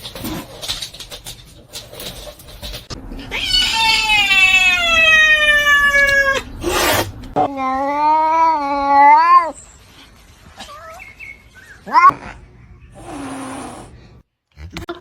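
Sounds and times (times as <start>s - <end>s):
cat yowling: 3.2s - 9.6s, 11.8s - 12.2s.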